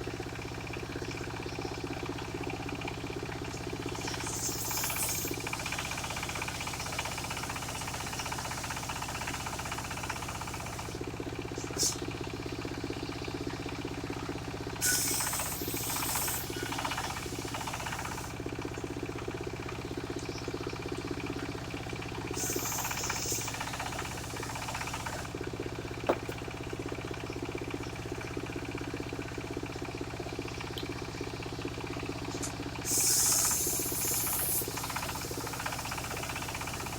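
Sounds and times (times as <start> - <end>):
sawmill engine running: 0.0 - 36.9
circular blade cutting timber: 4.0 - 11.0, 14.8 - 18.3, 22.4 - 25.3, 26.1 - 26.4, 32.9 - 36.9.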